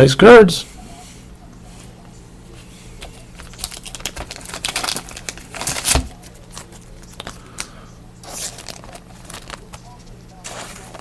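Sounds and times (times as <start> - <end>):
plastic wrappers crinkling: 3.0 - 11.0.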